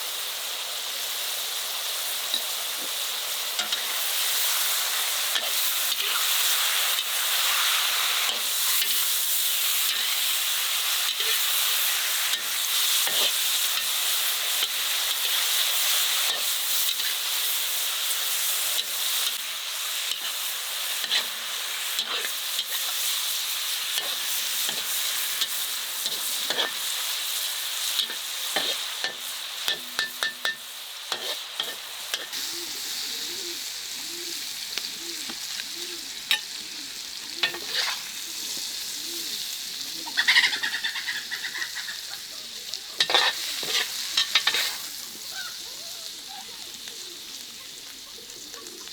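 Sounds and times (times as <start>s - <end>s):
food sizzling in a pan: 0.0s - 48.9s
utensil scraping a pan: 24.0s - 26.9s, 28.0s - 32.4s, 37.4s - 38.1s, 43.0s - 44.9s.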